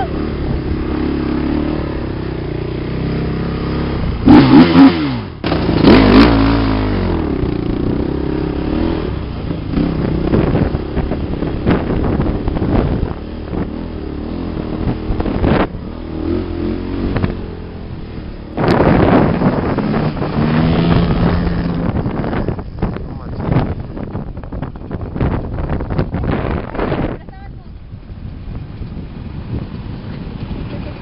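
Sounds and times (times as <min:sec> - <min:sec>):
off-road vehicle engine revving: 0:00.0 - 0:24.6
wind rushing over microphone: 0:00.0 - 0:31.0.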